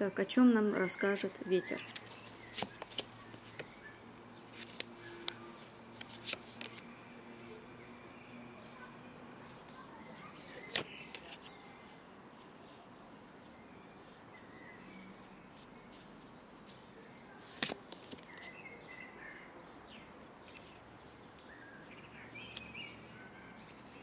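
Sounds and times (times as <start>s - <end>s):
faint outdoor hiss: 0.0s - 24.0s
bird chirps: 0.4s - 5.8s, 9.8s - 12.8s, 18.2s - 24.0s.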